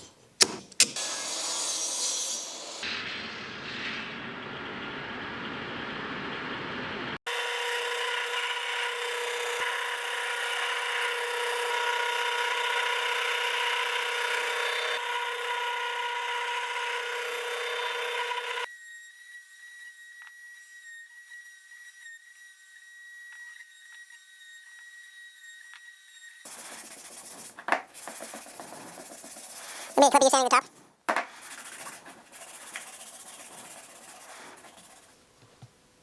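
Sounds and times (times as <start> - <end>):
power tool cutting wood: 0.0 - 2.9, 7.3 - 26.6.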